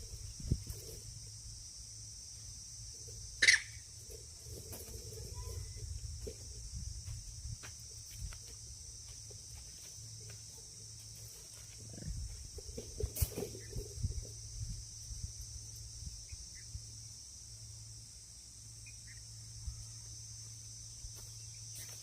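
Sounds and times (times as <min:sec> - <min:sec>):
insects chirring: 0:00.0 - 0:22.0
sharp animal cry: 0:03.4 - 0:03.8.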